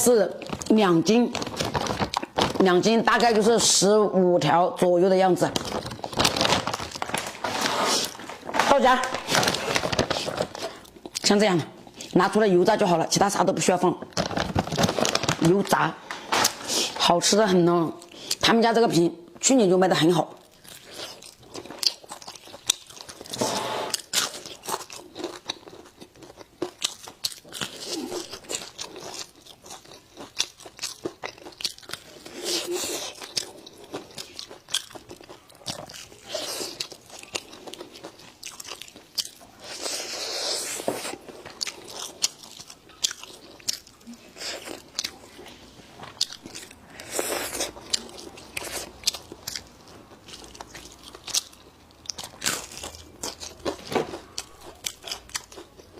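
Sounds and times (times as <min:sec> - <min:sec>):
crunchy chewing: 0:20.5 - 0:55.9.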